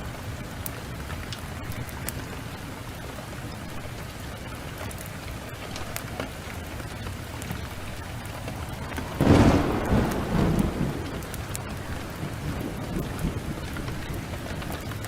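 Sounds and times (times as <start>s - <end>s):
heavy rain: 0.0s - 15.0s
wood fire crackling: 0.0s - 15.0s
loud thunderclap: 8.4s - 15.0s.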